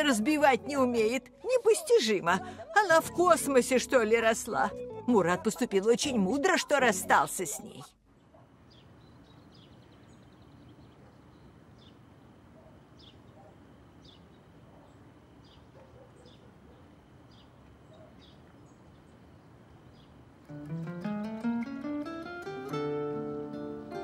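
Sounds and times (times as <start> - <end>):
small birds chirping: 8.1 - 20.7.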